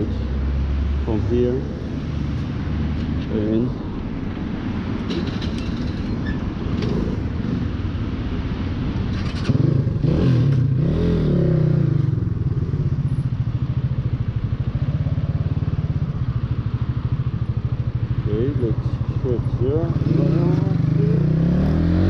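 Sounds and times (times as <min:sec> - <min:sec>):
motorcycle engine running: 0:09.2 - 0:22.0.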